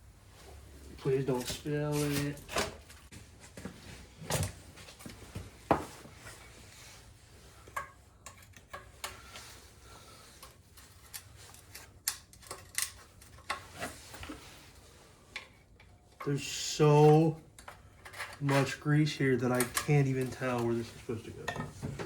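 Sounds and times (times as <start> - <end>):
knocks and clinks of engine parts: 21.4 - 22.0.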